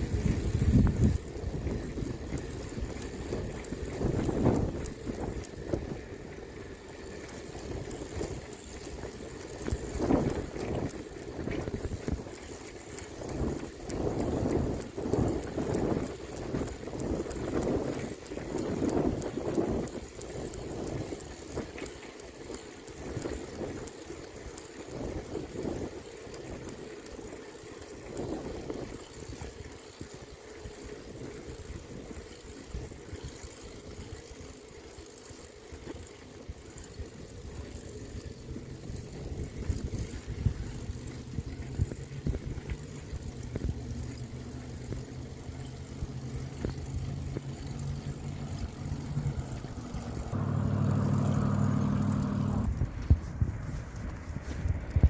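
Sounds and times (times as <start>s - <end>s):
wind on microphone: 0.0s - 6.3s, 7.4s - 21.8s, 37.5s - 45.0s
vehicle engine hum: 36.1s - 55.0s.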